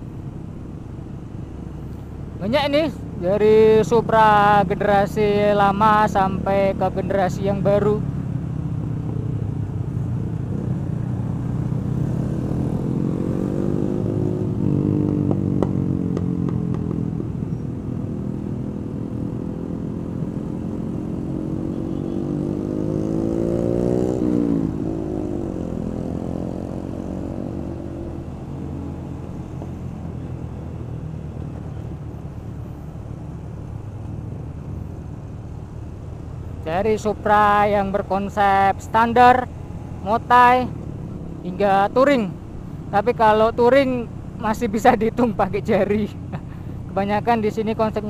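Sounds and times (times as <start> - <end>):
motorcycle engine revving: 10.4 - 32.1.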